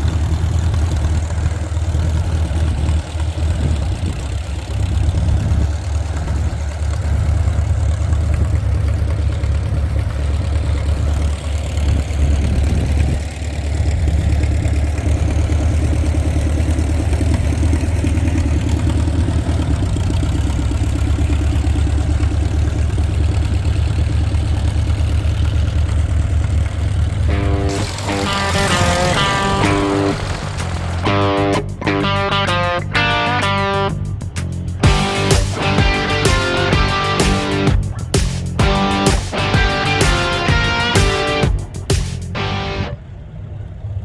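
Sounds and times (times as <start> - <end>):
tractor engines idling: 0.0 - 44.0
guitar music: 27.3 - 43.0.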